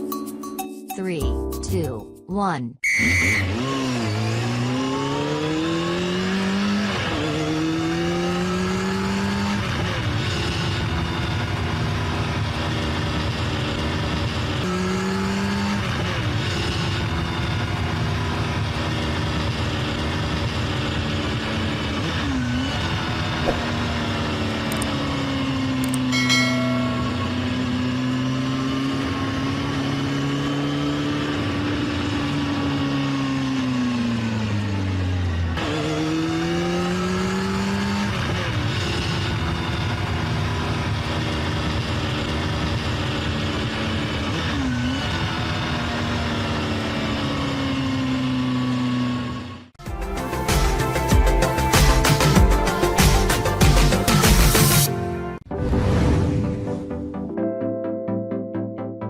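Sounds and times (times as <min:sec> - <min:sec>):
game engine revving: 0:02.8 - 0:57.1.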